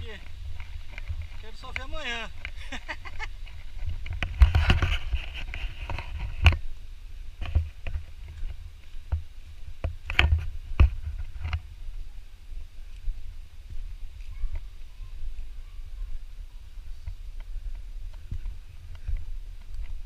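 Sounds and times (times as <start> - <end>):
microphone handling thumps: 0.0 - 6.7, 7.3 - 11.6.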